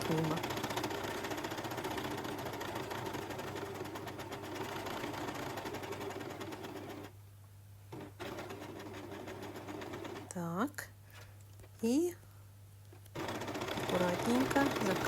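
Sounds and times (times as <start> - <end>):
overlock machine stitching: 0.0 - 7.2, 7.9 - 10.4, 13.1 - 15.0.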